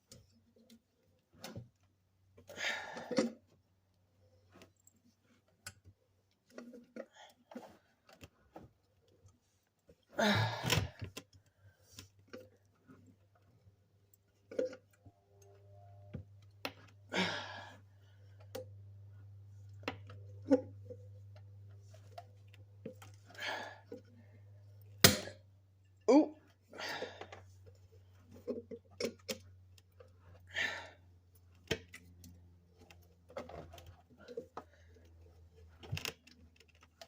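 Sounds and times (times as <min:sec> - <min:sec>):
faint low hum: 0:11.2 - 0:37.0.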